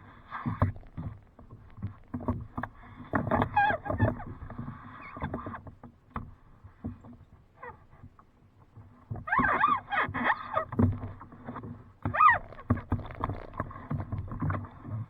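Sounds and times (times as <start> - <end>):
paddle strokes splashing in water: 10.0 - 15.0.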